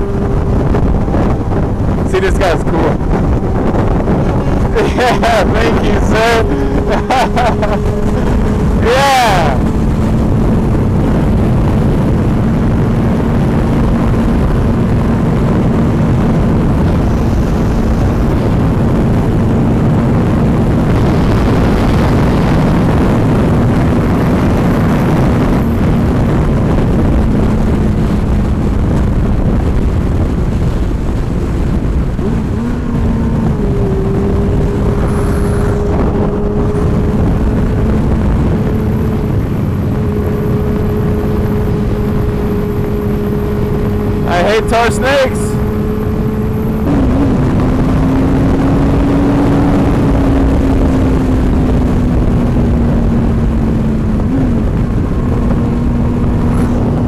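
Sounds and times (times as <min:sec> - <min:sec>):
motorcycle engine humming: 0:00.0 - 0:57.0
wind rushing over microphone: 0:00.0 - 0:57.0
higher steady tone: 0:32.4 - 0:47.0.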